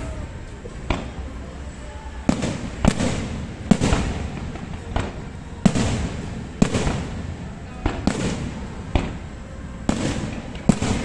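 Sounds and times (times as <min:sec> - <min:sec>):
fireworks bangs: 0:00.0 - 0:01.4, 0:02.0 - 0:11.0.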